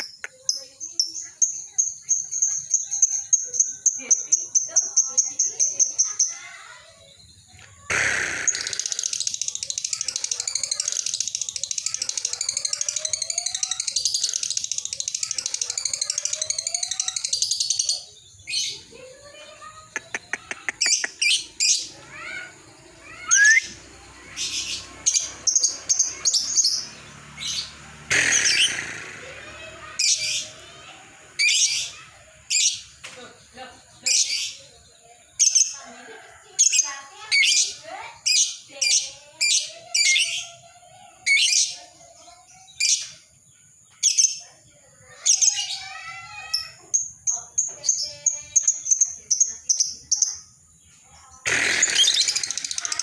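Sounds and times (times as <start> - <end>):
lovebird chirping and squawking: 7.6 - 18.8, 19.5 - 30.7, 31.3 - 32.9, 51.4 - 53.0
lovebird shrill calls: 7.9 - 11.1, 23.0 - 26.8, 27.4 - 30.5, 51.5 - 53.0.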